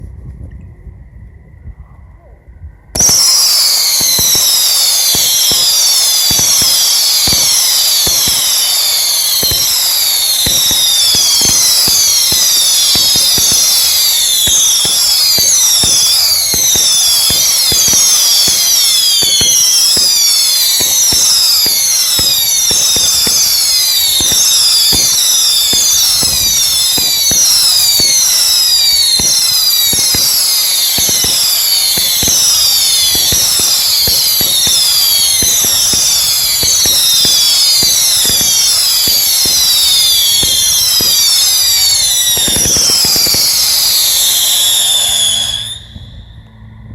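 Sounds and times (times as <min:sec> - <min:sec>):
firework launch pops: 0:03.0 - 0:46.5
whistling firework shots: 0:03.0 - 0:46.9.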